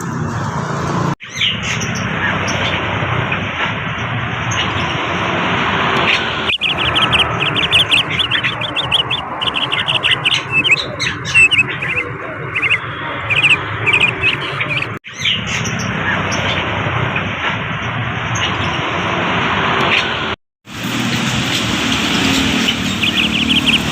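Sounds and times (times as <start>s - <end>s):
bird singing chirps and whistles: 6.5s - 16.6s, 22.6s - 23.9s.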